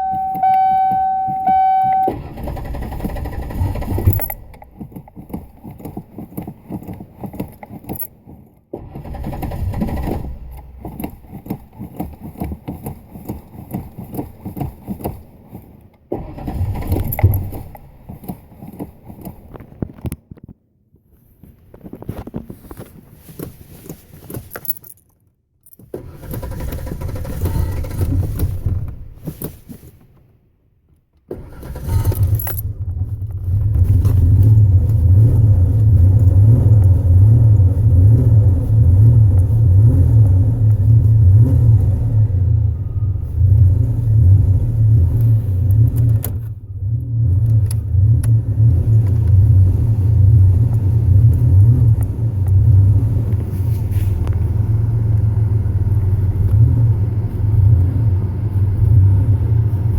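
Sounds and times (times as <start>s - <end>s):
car engine cranking and starting: 0.0s - 20.1s, 25.6s - 30.4s, 31.0s - 59.9s.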